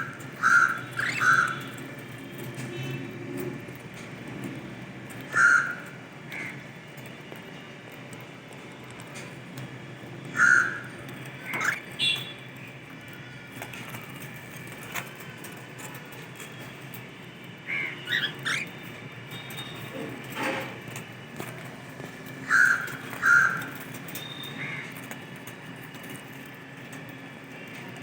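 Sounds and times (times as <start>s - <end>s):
cockatiels giving harsh calls: 0.0s - 1.8s, 5.2s - 6.6s, 10.3s - 12.2s, 17.6s - 19.0s, 22.4s - 23.9s.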